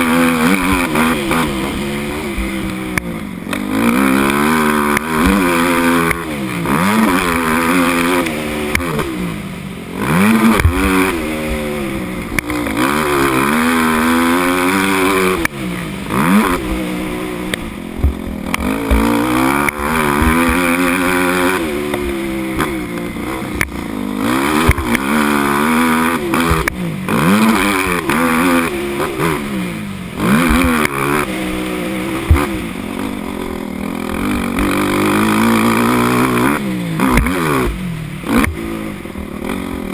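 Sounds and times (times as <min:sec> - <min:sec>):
dirt bike engine revving: 0:00.0 - 0:39.9
short thumps: 0:17.5 - 0:21.0.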